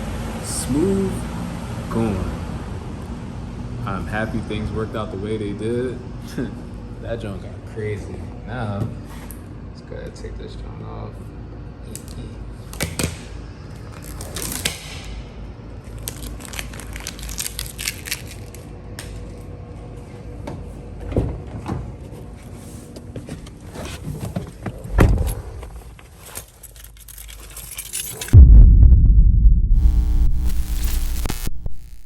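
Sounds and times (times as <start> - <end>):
heavy thumps: 28.4 - 31.5.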